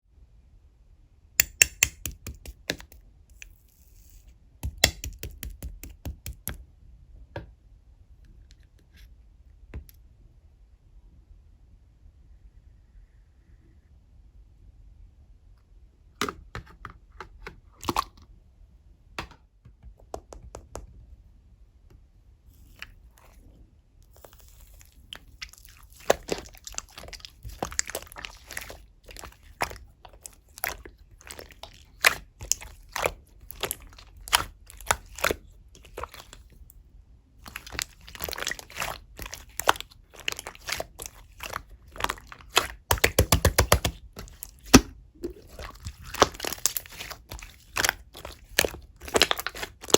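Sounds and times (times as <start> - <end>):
slime crackling and popping: 4.0 - 6.2, 24.2 - 36.6, 37.4 - 49.9.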